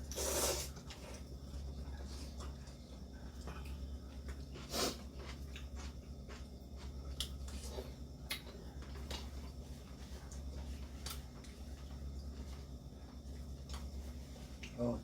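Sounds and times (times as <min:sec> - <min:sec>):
steady low hum: 0:00.0 - 0:15.0
noodle slurping: 0:00.1 - 0:00.8.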